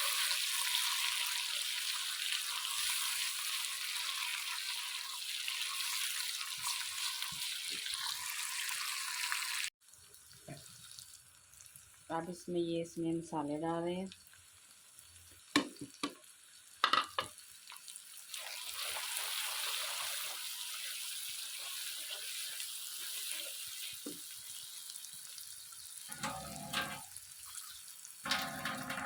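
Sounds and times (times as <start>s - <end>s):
spices sizzling in a pan: 0.0s - 29.0s
spoon clinking against pot: 26.1s - 27.1s, 28.3s - 29.0s.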